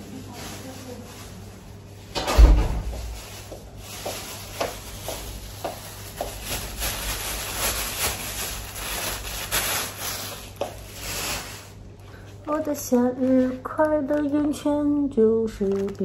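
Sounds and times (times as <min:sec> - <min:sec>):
sudden thump: 0:02.2 - 0:03.1
rustling: 0:02.7 - 0:11.8.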